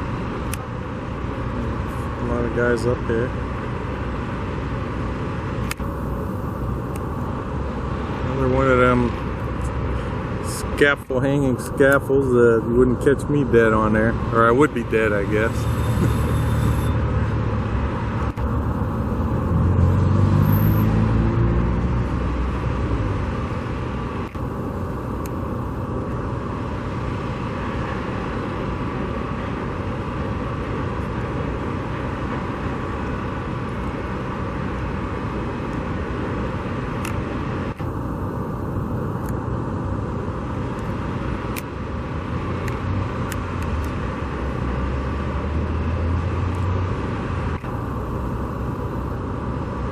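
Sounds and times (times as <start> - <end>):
road traffic noise: 0.0 - 49.9
vehicle accelerating past: 15.6 - 23.1, 44.6 - 47.0.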